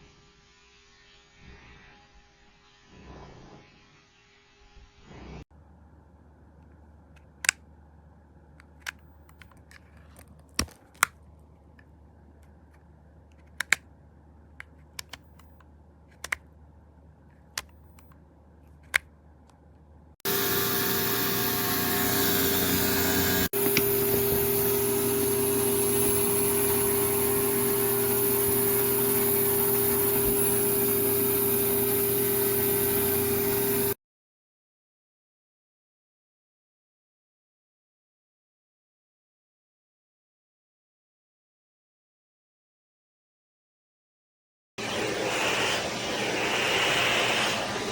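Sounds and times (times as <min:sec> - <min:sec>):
sharp plastic clicks: 0:06.6 - 0:07.6, 0:08.6 - 0:12.6, 0:13.3 - 0:13.9, 0:14.6 - 0:16.5, 0:17.3 - 0:19.6
vacuum motor running with whine: 0:20.2 - 0:34.0, 0:44.8 - 0:47.9.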